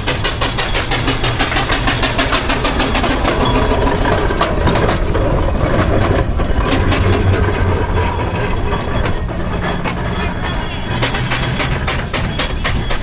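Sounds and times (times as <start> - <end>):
steam engine exhaust beats: 0.0 - 13.0.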